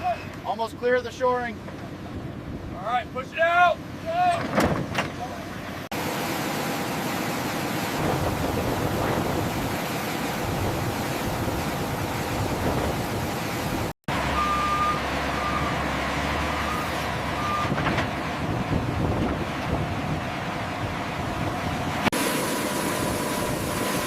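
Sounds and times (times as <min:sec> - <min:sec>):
vehicle engine hum: 0:00.0 - 0:24.0
vehicle backup alarm beeping: 0:14.3 - 0:15.9, 0:16.6 - 0:17.9.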